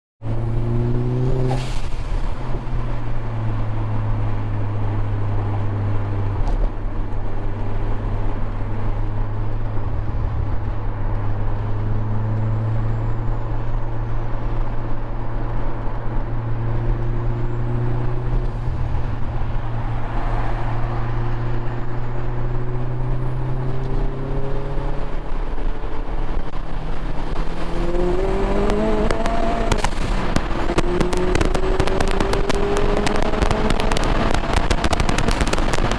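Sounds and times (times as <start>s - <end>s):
car engine droning and revving: 0.2s - 35.9s
exhaust pops crackling: 25.6s - 35.9s.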